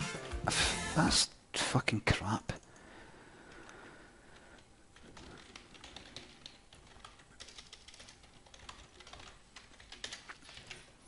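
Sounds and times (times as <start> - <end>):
typing on computer keyboard: 4.4 - 10.9.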